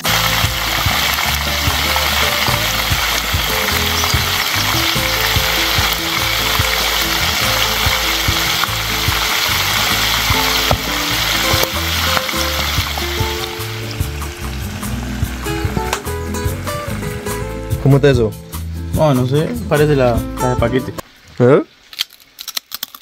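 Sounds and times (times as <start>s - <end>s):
potatoes sizzling in oil: 0.0s - 17.2s
background music: 0.0s - 21.0s.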